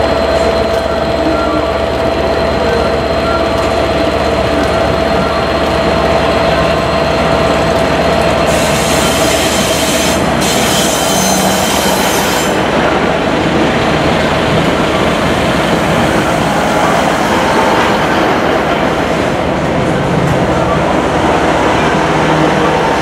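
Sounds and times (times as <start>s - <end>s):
diesel train rumbling past: 0.0s - 23.0s
train wheels squealing: 8.5s - 12.6s.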